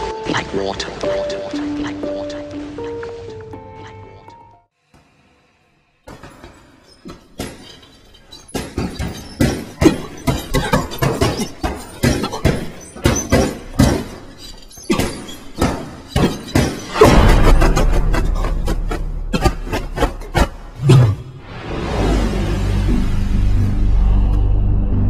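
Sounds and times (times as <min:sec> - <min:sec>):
loud sustained crash: 0:16.9 - 0:19.3, 0:21.3 - 0:24.3.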